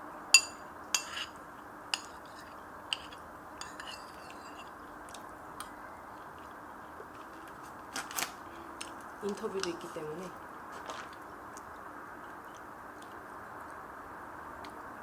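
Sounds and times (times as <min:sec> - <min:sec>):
metal utensil clinking on dish: 0:00.4 - 0:01.4, 0:02.0 - 0:04.8.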